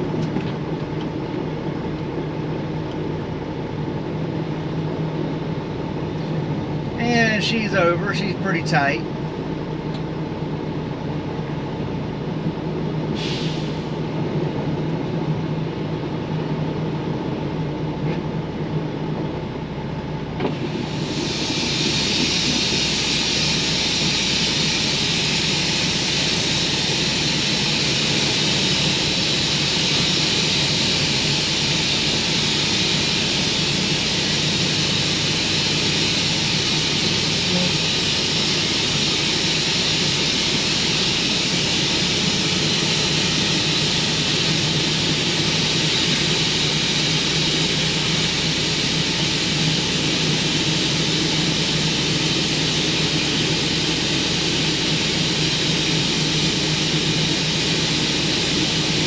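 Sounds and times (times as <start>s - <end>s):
diesel truck engine idling: 0.0s - 59.0s
loud steady hiss: 13.1s - 14.0s, 20.5s - 59.0s
air hiss burst: 13.2s - 14.0s, 20.5s - 59.0s.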